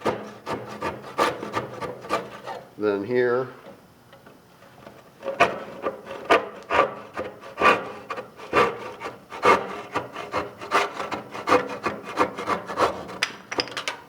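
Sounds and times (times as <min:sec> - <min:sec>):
hand saw cutting wood: 0:00.0 - 0:02.7, 0:05.2 - 0:13.4.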